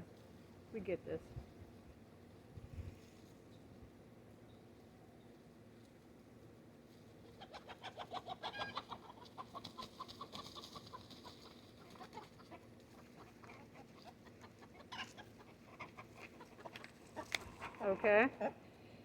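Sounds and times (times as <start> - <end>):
hen clucking: 7.2 - 18.6.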